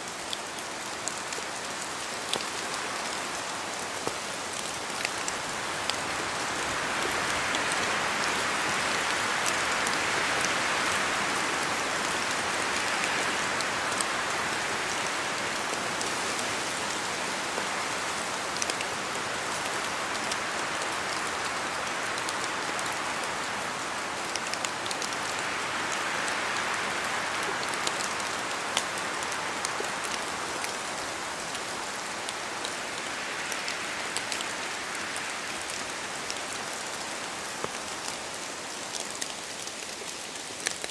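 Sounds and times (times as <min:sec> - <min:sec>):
rain falling through trees: 0:00.0 - 0:40.9
raindrops ticking: 0:38.9 - 0:40.9.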